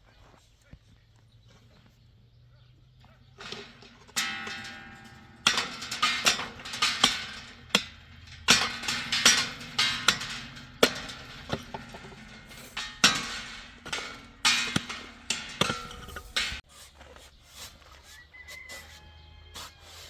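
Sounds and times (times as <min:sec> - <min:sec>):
hand tool striking stone: 0:03.4 - 0:16.6.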